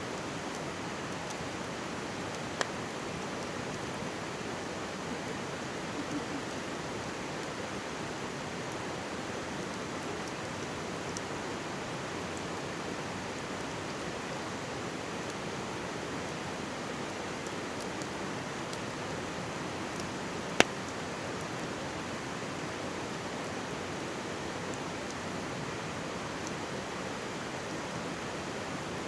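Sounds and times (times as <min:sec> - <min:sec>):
stream babbling: 0:00.1 - 0:29.0
campfire crackling: 0:00.2 - 0:29.0
firewood popping: 0:20.6 - 0:20.9.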